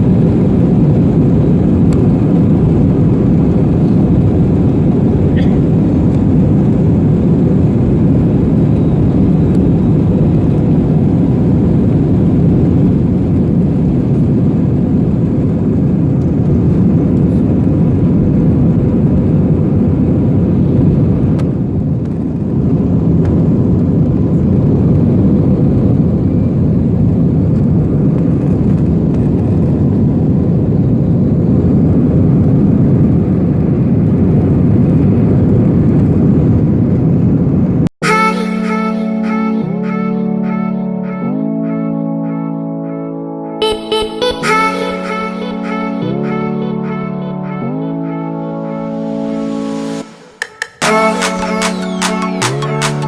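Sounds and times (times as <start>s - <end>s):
airliner cabin engine drone: 0.0s - 53.0s.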